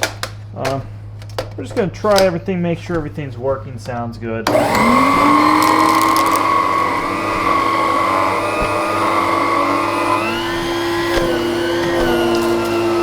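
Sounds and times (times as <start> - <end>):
vacuum cleaner motor whining: 4.4 - 13.0.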